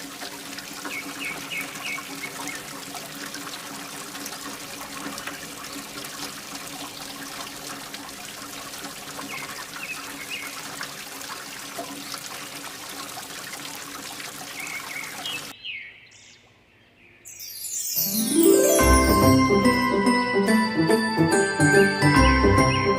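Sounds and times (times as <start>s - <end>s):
water trickling and pouring: 0.0s - 15.5s
music jingle with rising sweep: 17.4s - 22.9s.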